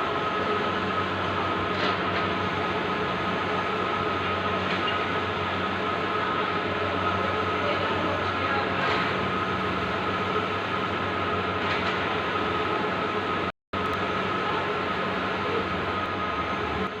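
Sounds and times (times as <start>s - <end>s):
printer mechanical whirr: 0.0s - 17.0s.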